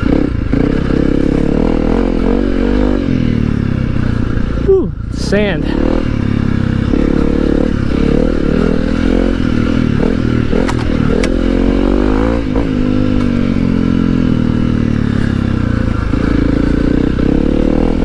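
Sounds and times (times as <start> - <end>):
dirt bike engine revving: 0.0 - 18.0
sharp clicks: 10.6 - 11.4.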